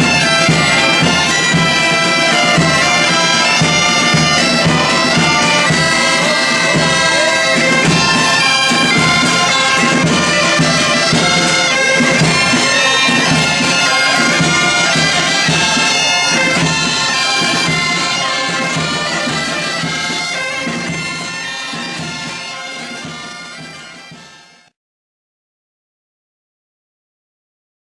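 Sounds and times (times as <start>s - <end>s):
drum beat: 0.0s - 24.2s
reed pipes playing a tune: 0.0s - 24.8s.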